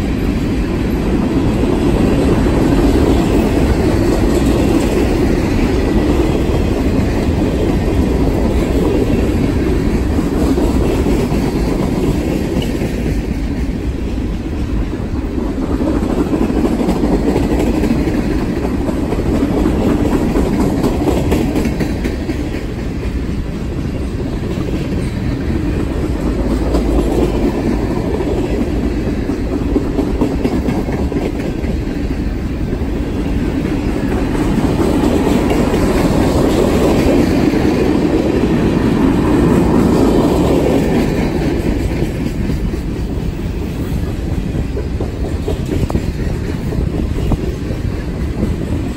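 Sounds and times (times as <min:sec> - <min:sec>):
loud train rumble: 0:00.0 - 0:48.9
train wheels clacking over rail joints: 0:00.0 - 0:48.9.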